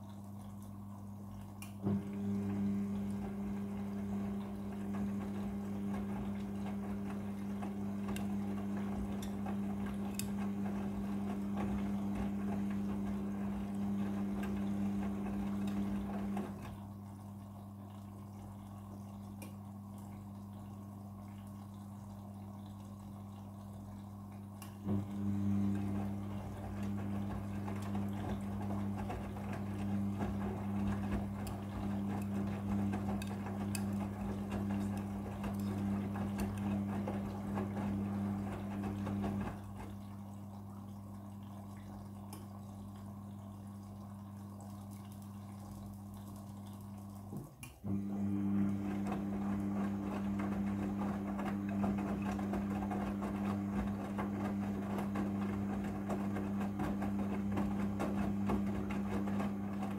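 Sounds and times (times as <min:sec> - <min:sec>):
washing machine humming: 0:00.0 - 0:59.9
water rushing into drum: 0:00.0 - 0:59.9
washing machine click: 0:01.6 - 0:16.8, 0:24.6 - 0:40.0.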